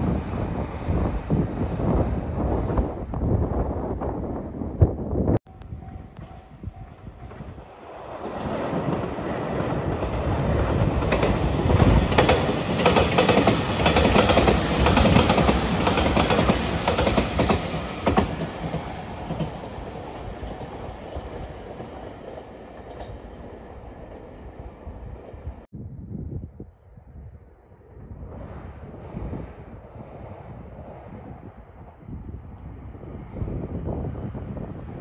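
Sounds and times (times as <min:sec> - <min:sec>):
electric train passing: 0:05.5 - 0:25.7.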